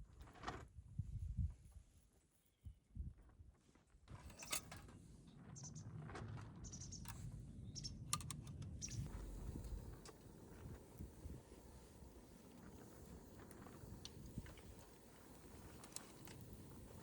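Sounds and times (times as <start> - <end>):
low steady rumble: 8.8 - 17.0
wood fire crackling and popping: 9.0 - 17.0.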